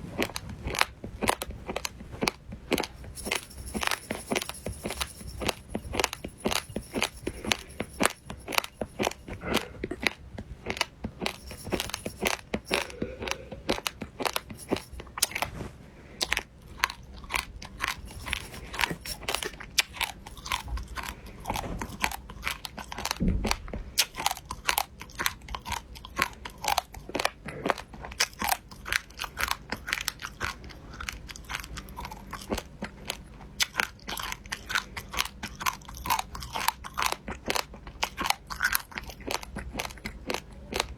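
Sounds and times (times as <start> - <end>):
crunchy food being chewed: 0.0 - 40.9.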